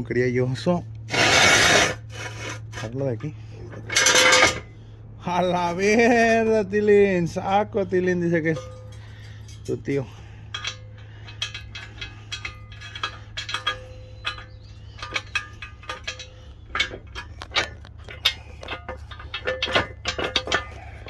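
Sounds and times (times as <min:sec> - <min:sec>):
steady low hum: 0:00.0 - 0:21.0
metal parts and tools clinking: 0:03.7 - 0:04.7, 0:08.4 - 0:21.0.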